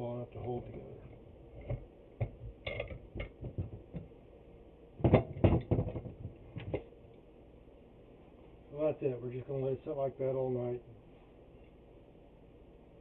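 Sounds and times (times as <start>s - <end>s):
wooden boards and clamps knocking: 1.7s - 4.1s, 5.0s - 6.8s.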